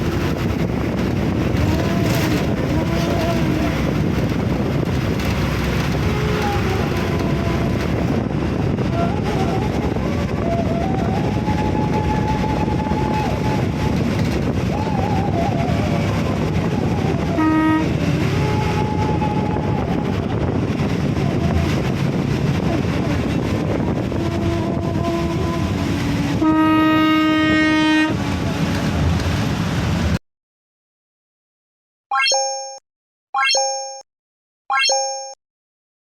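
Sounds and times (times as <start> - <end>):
moving vehicle rumble: 0.0 - 30.2
vehicle horn: 17.3 - 19.1, 24.6 - 28.2.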